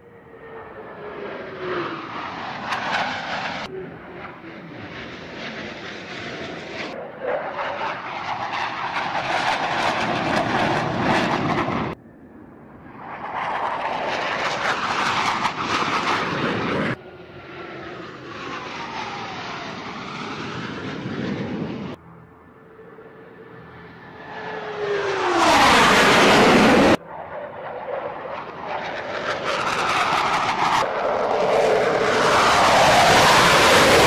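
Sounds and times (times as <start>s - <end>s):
falling engine whine: 0.0s - 34.0s
stunt plane engines: 0.0s - 34.0s.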